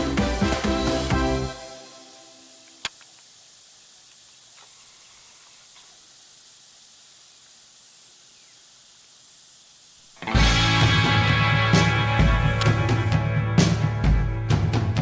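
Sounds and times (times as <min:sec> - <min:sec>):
loud rock music: 0:00.0 - 0:01.7, 0:10.2 - 0:15.0
faint outdoor hiss: 0:00.0 - 0:15.0.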